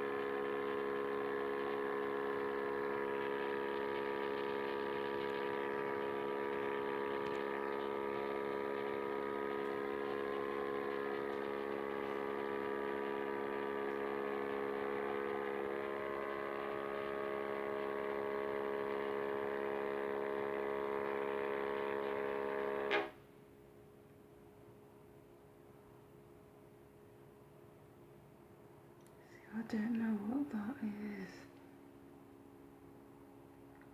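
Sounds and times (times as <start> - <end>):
buzzing hum: 0.0 - 23.2
click: 29.0 - 29.2.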